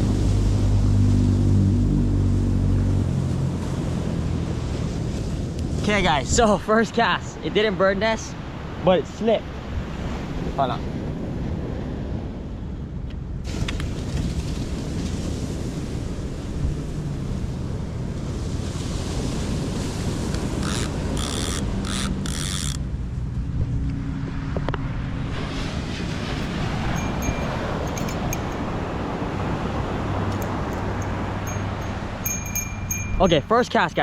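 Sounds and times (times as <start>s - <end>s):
wind: 0.0s - 34.0s
fishing reel whirring: 20.4s - 22.8s.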